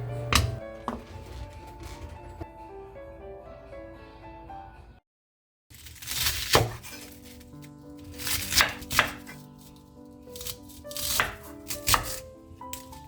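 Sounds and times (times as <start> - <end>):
knife cutting on cutting board: 5.8 - 9.8, 10.4 - 12.8.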